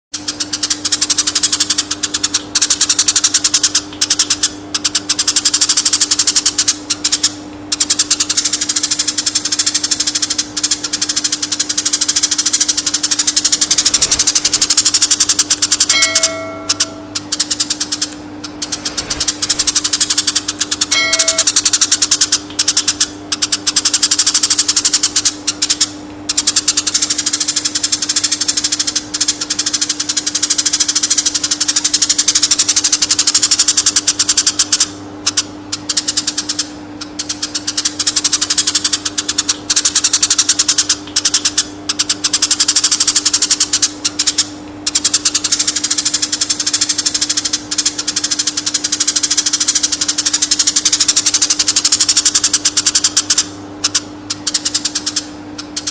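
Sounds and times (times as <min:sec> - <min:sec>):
sparrow chattering chirps: 0:04.2 - 0:23.0
steady low hum: 0:04.6 - 0:28.0.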